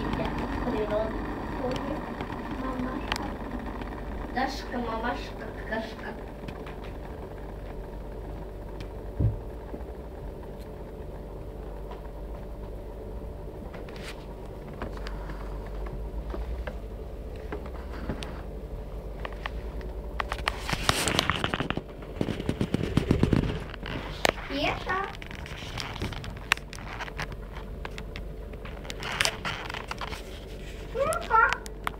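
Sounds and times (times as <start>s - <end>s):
crackling clicks: 0.0s - 12.8s, 19.1s - 31.9s
electric kettle heating water: 0.0s - 31.9s.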